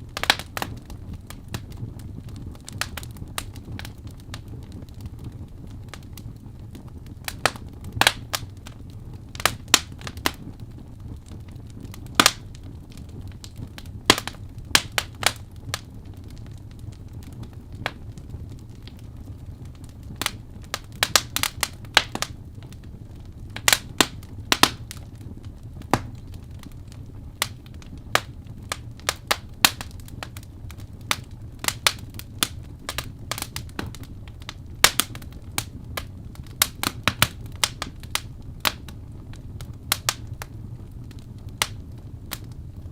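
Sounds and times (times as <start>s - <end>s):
logs crackling and popping: 0.0s - 42.9s
low rush of flame: 0.0s - 42.9s.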